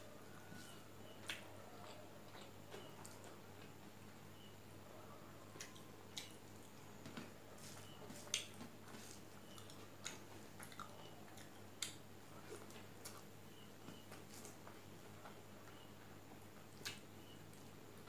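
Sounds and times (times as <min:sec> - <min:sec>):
chewing with wet mouth clicks: 0:01.1 - 0:03.7, 0:05.6 - 0:06.8, 0:07.7 - 0:15.8.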